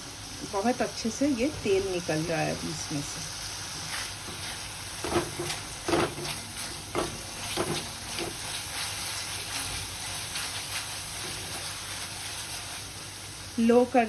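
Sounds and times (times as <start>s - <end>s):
masala frying hiss: 0.0s - 14.0s
spatula scraping pan: 3.7s - 12.9s.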